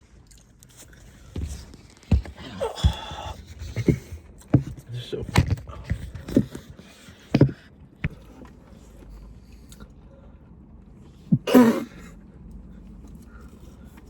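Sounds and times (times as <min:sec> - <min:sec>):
person coughing: 0:11.3 - 0:12.1.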